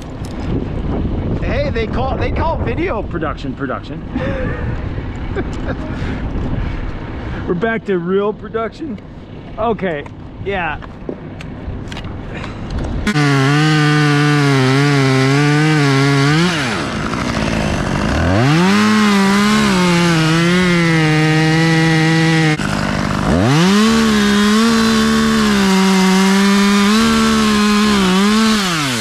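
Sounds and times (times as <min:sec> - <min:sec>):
chainsaw cutting wood: 0:13.0 - 0:29.0.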